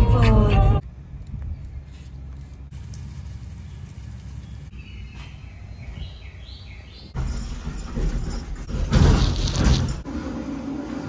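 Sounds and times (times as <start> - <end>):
low outdoor rumble: 0.0 - 6.2
bird chirping: 3.6 - 7.2.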